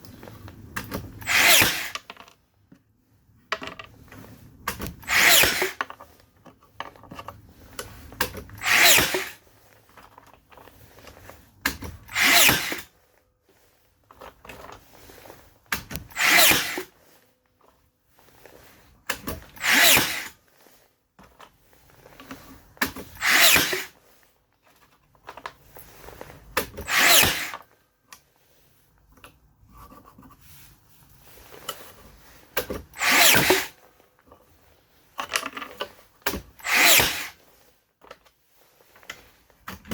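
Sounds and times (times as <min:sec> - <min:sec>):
tool handling noises: 0:00.0 - 0:28.3, 0:31.4 - 0:39.9
nail gun firing bursts: 0:01.2 - 0:02.0, 0:05.1 - 0:05.8, 0:08.6 - 0:09.4, 0:16.1 - 0:16.9, 0:19.6 - 0:20.3, 0:23.2 - 0:23.9, 0:26.8 - 0:27.5, 0:36.6 - 0:37.4.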